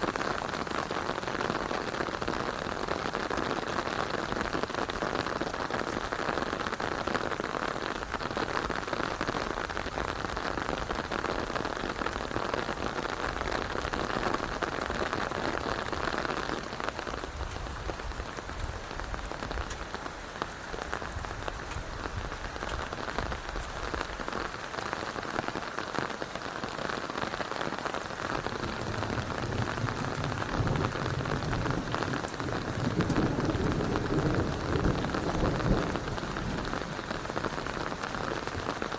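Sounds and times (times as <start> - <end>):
steady rain falling: 0.0 - 38.9
wind gusting on microphone: 28.4 - 38.8.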